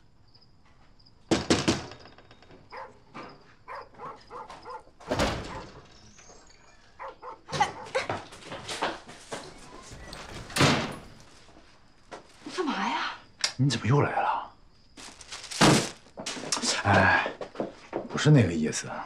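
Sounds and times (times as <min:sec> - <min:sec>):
dog barking and yelping: 0:02.7 - 0:08.2.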